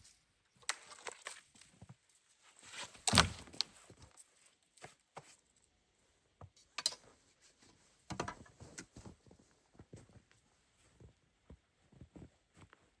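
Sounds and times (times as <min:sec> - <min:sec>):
thuds and crunches: 0:02.8 - 0:03.8.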